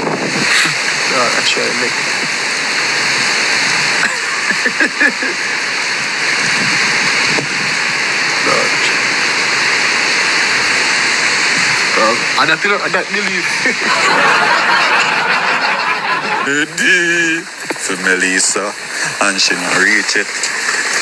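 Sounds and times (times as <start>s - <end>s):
heavy rain and rushing water: 0.0s - 21.0s
faint voices: 0.3s - 2.4s, 8.3s - 9.2s, 11.6s - 21.0s.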